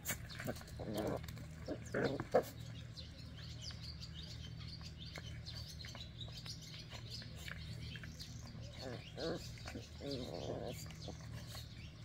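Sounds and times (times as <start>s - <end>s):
puppy growl: 0.0s - 2.9s, 7.0s - 12.0s
small birds chirping: 0.0s - 12.0s.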